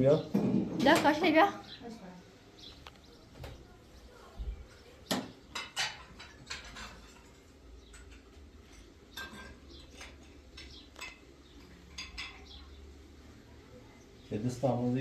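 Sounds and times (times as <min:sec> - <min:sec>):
hard objects clinking and scraping: 0:05.5 - 0:12.5.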